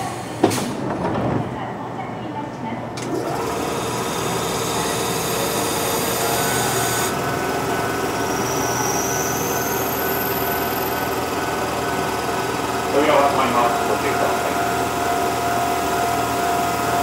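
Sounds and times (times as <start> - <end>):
electric train running noise: 3.0 - 17.0.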